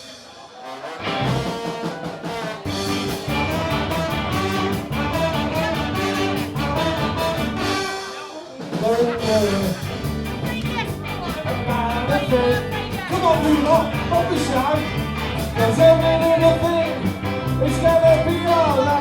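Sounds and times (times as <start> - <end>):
ska band rhythm: 0.0 - 19.0
trombone solo: 0.3 - 10.0.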